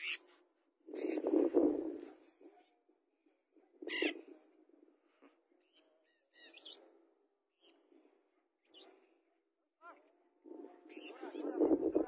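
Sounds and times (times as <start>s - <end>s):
bird chirps: 5.6s - 6.8s.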